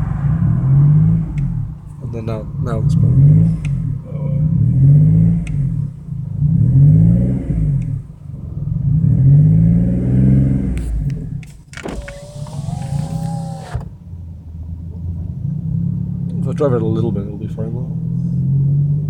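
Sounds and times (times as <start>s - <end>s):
rough car engine revving: 0.0s - 14.0s
wavering squeal: 12.0s - 13.8s.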